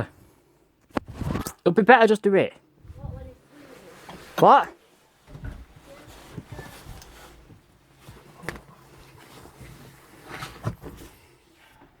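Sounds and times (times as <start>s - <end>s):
rustling: 2.9s - 11.8s.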